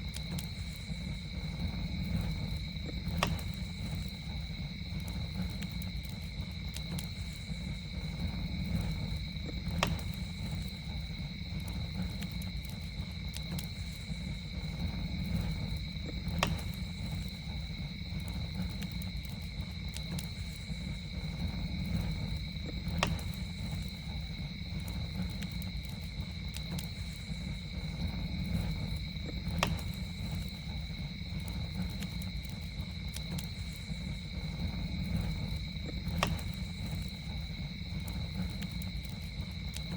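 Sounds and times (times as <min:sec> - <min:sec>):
campfire low rumble: 0:00.0 - 0:39.9
campfire sharp pop: 0:03.0 - 0:03.6, 0:09.6 - 0:10.2, 0:22.9 - 0:23.4, 0:29.4 - 0:30.0, 0:36.0 - 0:36.6.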